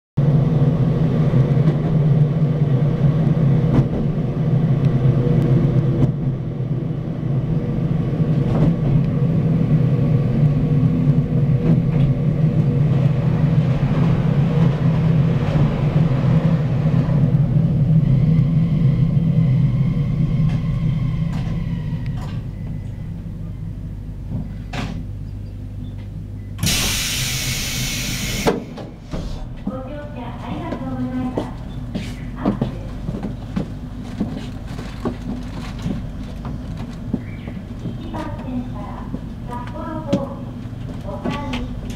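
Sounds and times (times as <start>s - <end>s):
train running hum: 0.2s - 41.9s
air hiss: 26.6s - 28.6s.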